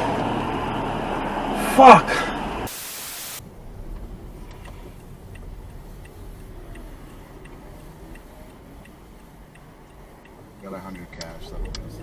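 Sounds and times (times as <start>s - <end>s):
car turn signal ticking: 3.4s - 12.0s
low steady rumble: 3.4s - 12.0s.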